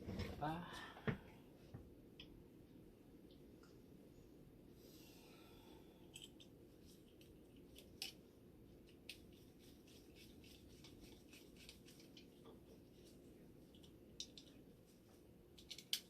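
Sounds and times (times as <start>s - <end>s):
low steady hum: 0.0s - 16.0s
clicks and scrapes of small parts: 6.0s - 8.2s, 13.7s - 14.6s, 15.5s - 16.0s.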